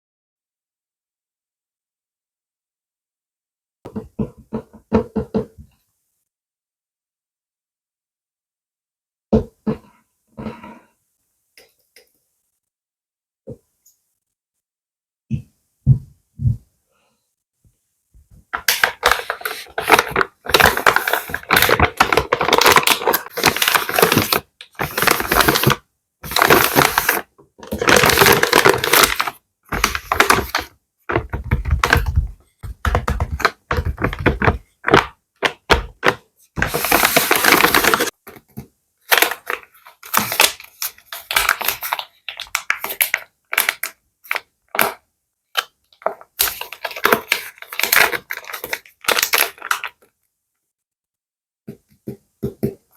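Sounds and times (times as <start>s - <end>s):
plastic bags crinkling: 18.6s - 32.2s, 33.3s - 38.4s, 39.1s - 44.9s, 46.0s - 50.1s.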